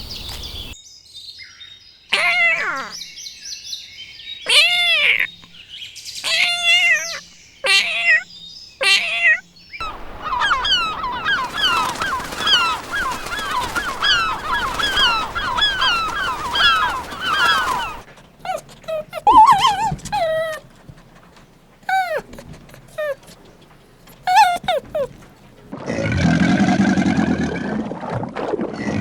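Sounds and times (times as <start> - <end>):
chorus of high animal calls: 2.1 - 3.0, 4.5 - 5.5, 6.2 - 25.6.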